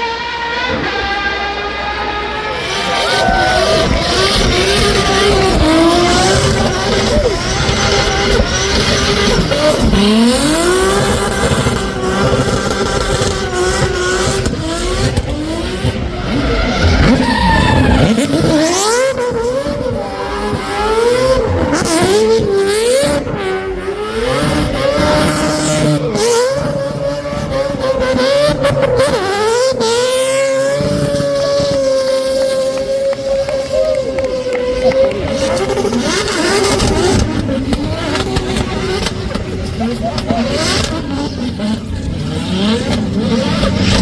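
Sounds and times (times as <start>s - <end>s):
racing car engine revving: 0.0s - 44.0s
tyre squeal: 2.3s - 12.6s, 16.2s - 22.5s.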